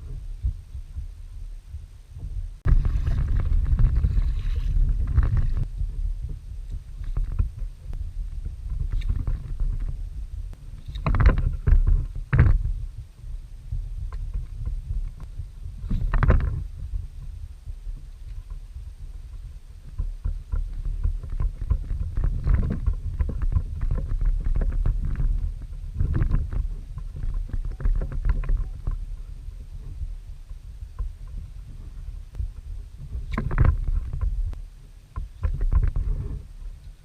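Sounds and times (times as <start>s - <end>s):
wind rumble on microphone: 0.0s - 37.0s
water splashing against a kayak: 2.7s - 6.0s.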